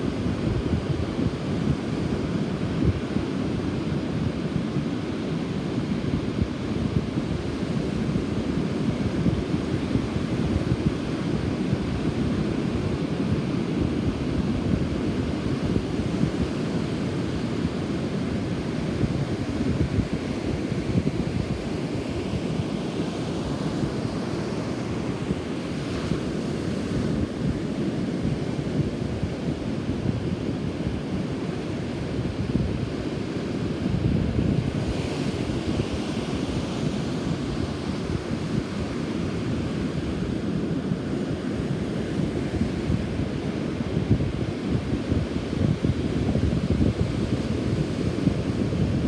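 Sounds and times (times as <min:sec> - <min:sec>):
wind buffeting microphone: 0:06.1 - 0:22.7, 0:25.0 - 0:40.6, 0:42.4 - 0:49.0.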